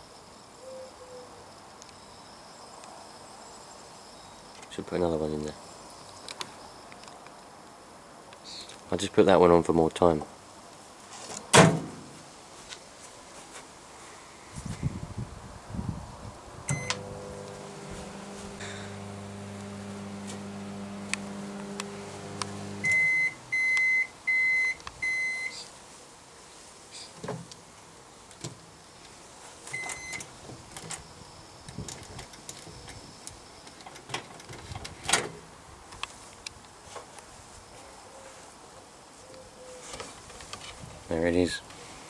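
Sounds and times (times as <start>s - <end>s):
microwave oven humming: 16.7s - 23.9s
microwave beeps: 16.7s - 25.6s, 29.8s - 30.2s.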